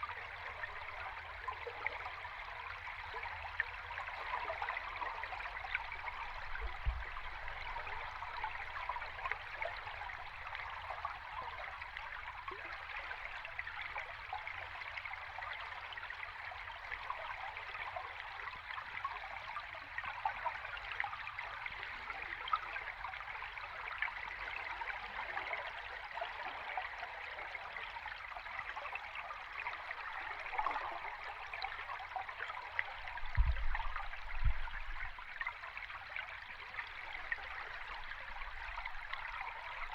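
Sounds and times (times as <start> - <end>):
stream babbling underwater: 0.0 - 39.9
low underwater thump: 33.2 - 35.3.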